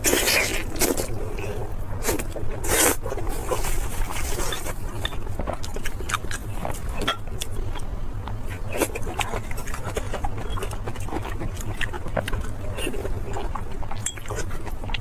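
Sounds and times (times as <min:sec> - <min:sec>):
chewing with sharp crackles: 0:00.0 - 0:15.0.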